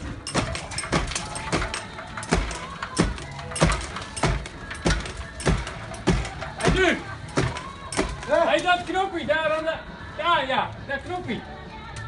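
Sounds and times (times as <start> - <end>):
regular thuds: 0.0 - 9.1.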